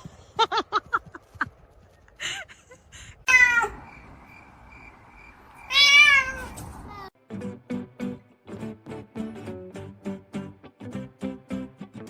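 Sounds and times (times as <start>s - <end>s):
cat meowing: 3.3s - 3.8s, 5.7s - 6.6s.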